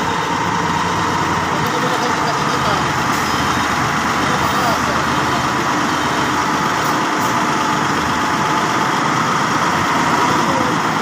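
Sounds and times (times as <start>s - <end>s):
heavy vehicle engine running: 0.0s - 11.0s.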